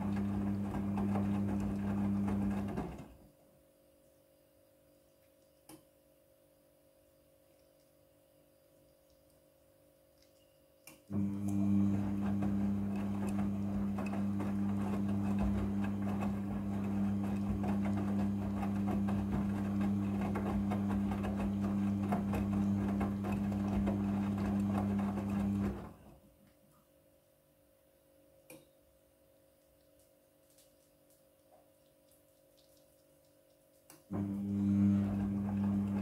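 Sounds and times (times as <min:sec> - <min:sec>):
small electric machine humming and rattling: 0:11.1 - 0:26.0, 0:34.1 - 0:36.0.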